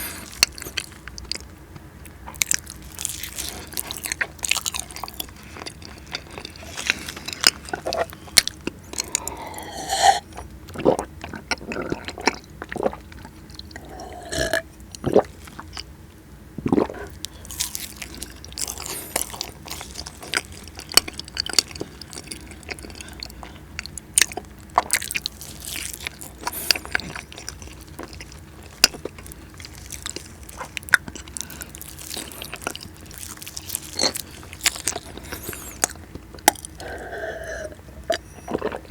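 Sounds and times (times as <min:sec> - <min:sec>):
chewing with wet mouth clicks: 0:00.0 - 0:09.6, 0:16.7 - 0:37.1.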